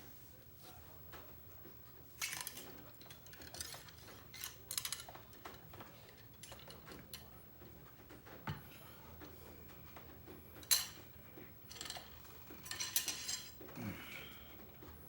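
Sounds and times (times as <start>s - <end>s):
metallic clinks and scrapes: 2.2s - 6.9s, 11.7s - 13.6s.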